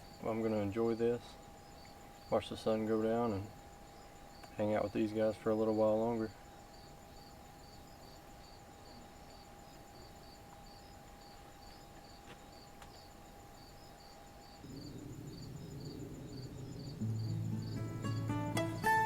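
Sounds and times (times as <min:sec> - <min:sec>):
crickets chirping: 0:00.0 - 0:19.0
music: 0:17.0 - 0:19.0.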